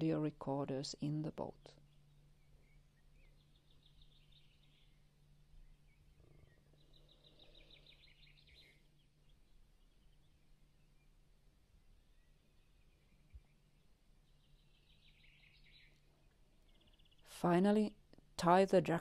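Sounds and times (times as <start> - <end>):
faint bird trills: 1.8 - 10.3.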